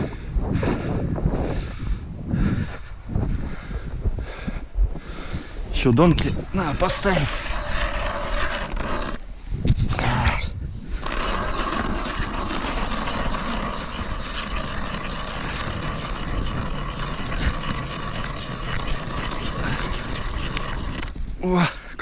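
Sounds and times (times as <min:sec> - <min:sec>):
ice auger boring through ice: 0:05.0 - 0:09.2, 0:11.0 - 0:21.2.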